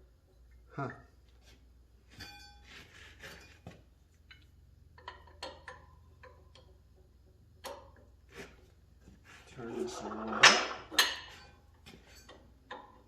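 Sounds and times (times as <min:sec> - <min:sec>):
metallic clinks and taps: 0:03.5 - 0:08.2.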